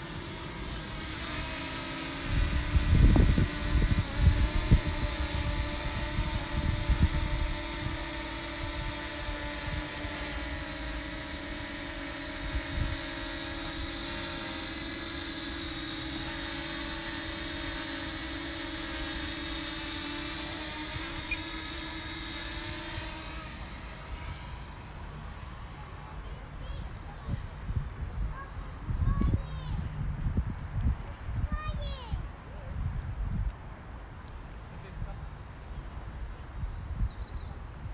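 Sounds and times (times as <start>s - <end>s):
wind buffeting microphone: 0.0s - 24.7s, 26.7s - 33.7s
drone propellers buzzing: 0.0s - 28.8s.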